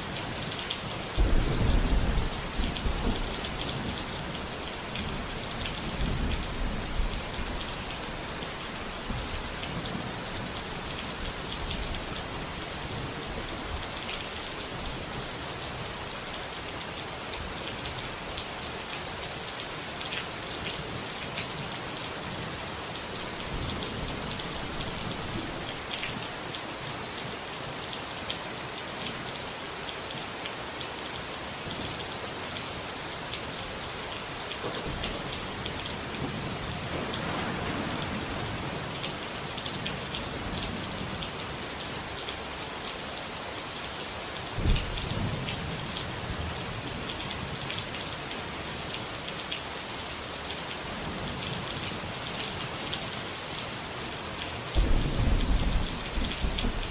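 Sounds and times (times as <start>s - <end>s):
heavy rain pattering: 0.1s - 28.0s, 32.6s - 43.7s, 44.4s - 56.9s
loud thunderclap: 1.2s - 3.4s, 36.2s - 39.1s, 44.6s - 45.2s, 54.8s - 56.9s
low rolls of thunder: 1.2s - 4.0s, 36.1s - 39.3s, 44.6s - 45.5s, 54.8s - 56.9s.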